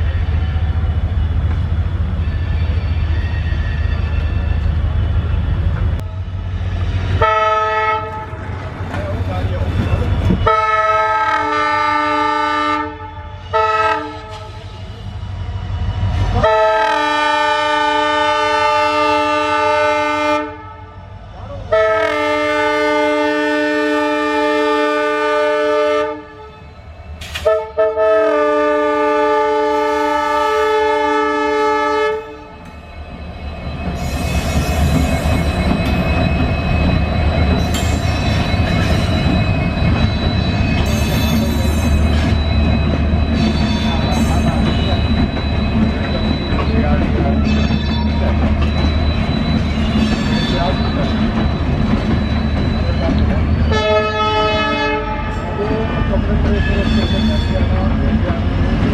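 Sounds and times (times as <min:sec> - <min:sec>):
train rumbling past: 0:00.0 - 0:58.9
locomotive air horn blasts: 0:07.2 - 0:08.3, 0:10.5 - 0:14.6, 0:16.4 - 0:20.9, 0:21.7 - 0:26.6, 0:27.4 - 0:32.5, 0:53.7 - 0:55.4.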